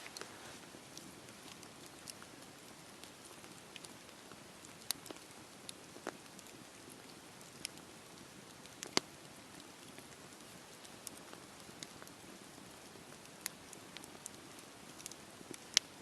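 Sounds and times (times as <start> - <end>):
fire crackles and pops: 0.0 - 16.0
wood fire hissing: 0.0 - 16.0.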